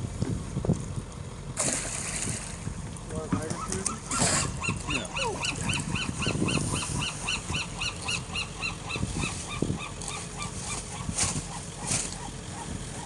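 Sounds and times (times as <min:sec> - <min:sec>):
bird calling short notes: 0:03.5 - 0:12.7.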